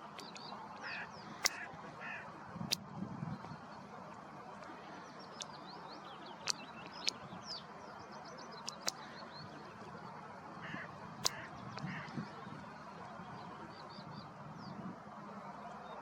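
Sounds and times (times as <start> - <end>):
sharp clicks: 0.1 - 1.6, 6.4 - 7.2, 8.6 - 9.0, 11.2 - 11.9
small bird twittering: 0.1 - 2.2, 6.2 - 7.6, 8.6 - 9.1.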